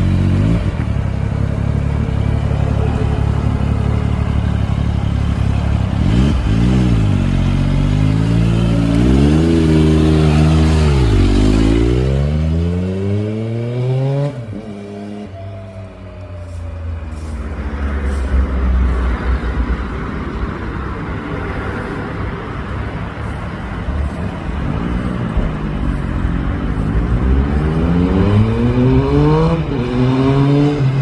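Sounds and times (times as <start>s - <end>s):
motorcycle engine accelerating: 0.0s - 17.4s, 24.0s - 31.0s.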